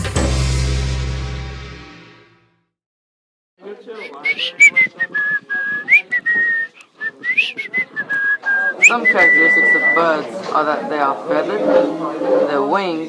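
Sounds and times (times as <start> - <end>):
person whistling a tune: 4.0 - 10.1.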